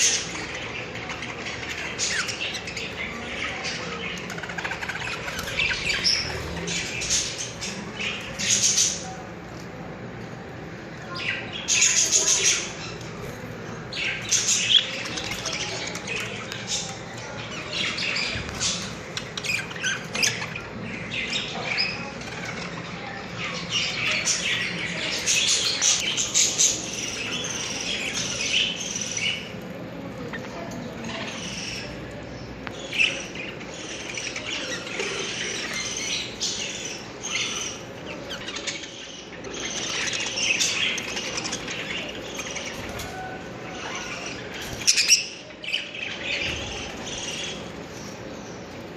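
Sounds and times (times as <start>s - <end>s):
budgerigars chirping: 0.0s - 9.2s, 30.3s - 48.8s.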